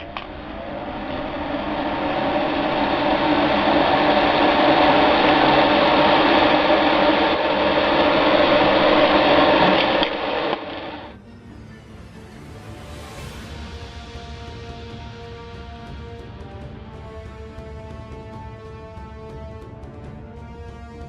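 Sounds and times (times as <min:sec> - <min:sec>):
exhaust fan motor humming: 0:00.0 - 0:11.1
rush of air: 0:00.0 - 0:11.1.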